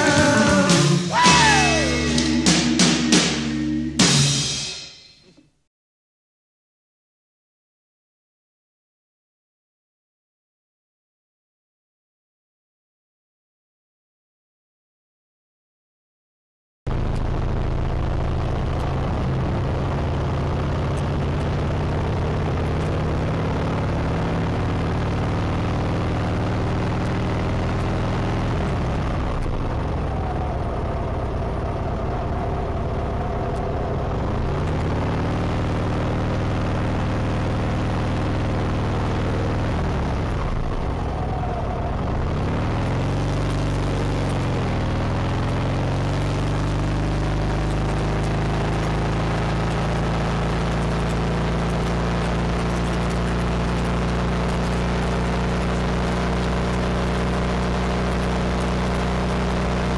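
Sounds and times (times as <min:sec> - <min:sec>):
motorcycle engine running: 0:16.9 - 0:59.9
wind and road noise: 0:16.9 - 0:59.9.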